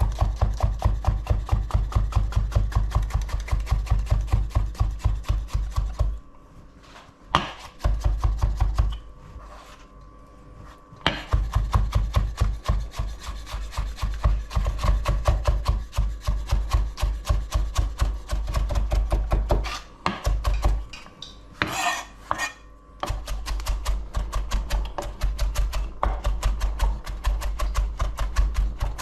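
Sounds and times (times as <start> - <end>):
knife scraping board: 6.8 - 9.9, 12.2 - 17.2, 19.5 - 19.9, 21.6 - 22.7.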